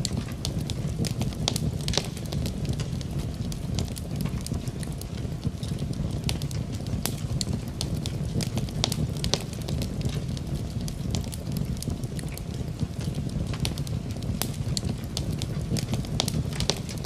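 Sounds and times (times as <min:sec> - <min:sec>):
rain: 0:00.0 - 0:17.0
wood fire crackling: 0:00.0 - 0:17.0.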